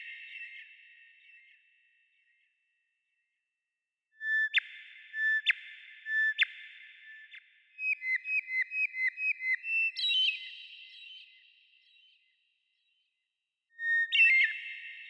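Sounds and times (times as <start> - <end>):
bird whistling song: 4.2 - 12.3, 13.8 - 15.0.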